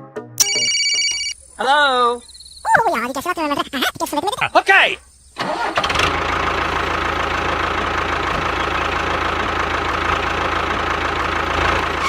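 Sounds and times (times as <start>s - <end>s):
tractor engine idling with knock: 5.4s - 12.0s.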